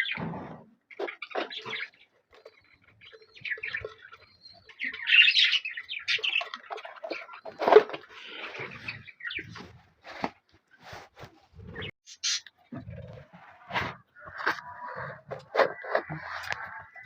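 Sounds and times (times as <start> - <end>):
budgerigars chirping: 11.8 - 12.5.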